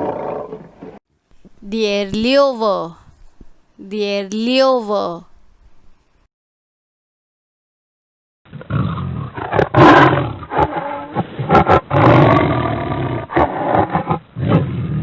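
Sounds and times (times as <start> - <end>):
lion roaring: 0.0 - 1.0, 8.5 - 15.0.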